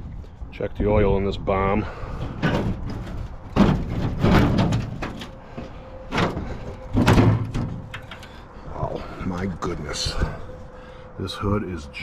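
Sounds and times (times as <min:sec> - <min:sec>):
metal clunks and scrapes: 0:02.1 - 0:09.1.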